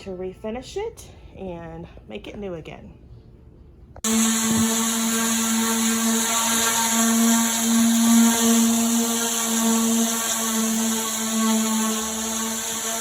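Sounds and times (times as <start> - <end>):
electric sander humming: 4.0 - 13.0.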